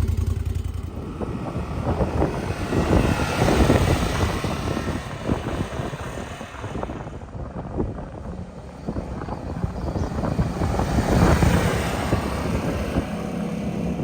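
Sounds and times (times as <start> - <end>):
engine running through sport muffler: 0.0 - 4.6.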